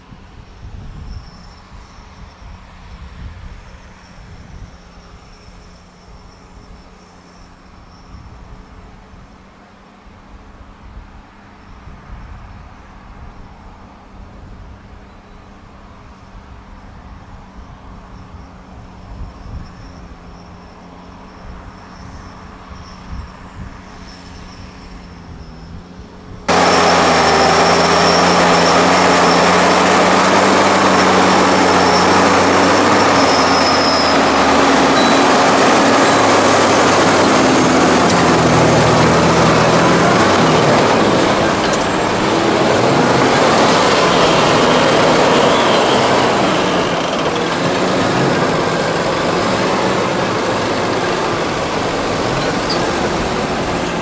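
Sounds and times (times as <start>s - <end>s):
tractor diesel engines working hard: 14.1s - 54.0s.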